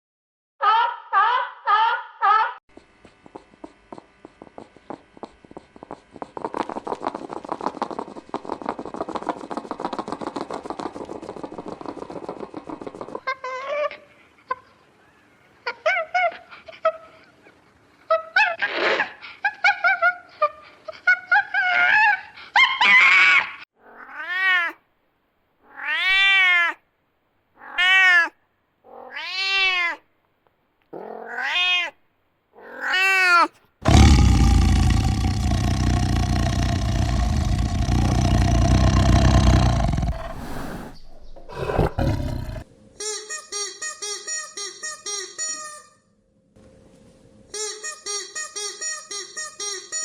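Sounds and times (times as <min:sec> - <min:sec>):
meow-like cries: 0:23.1 - 0:24.8, 0:25.7 - 0:26.8, 0:27.6 - 0:30.0, 0:31.0 - 0:32.0, 0:32.6 - 0:33.5
loud rough animal call: 0:33.8 - 0:42.7
fast pulsed animal calls: 0:33.9 - 0:42.6.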